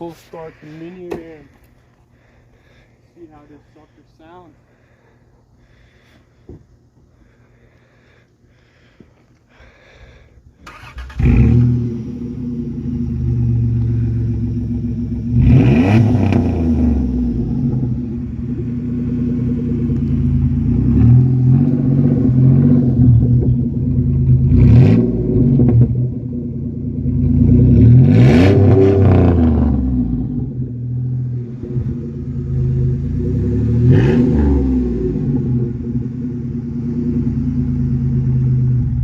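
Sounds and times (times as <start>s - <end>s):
engine throttle blips: 10.6s - 39.0s
loud van engine idling: 17.2s - 21.0s.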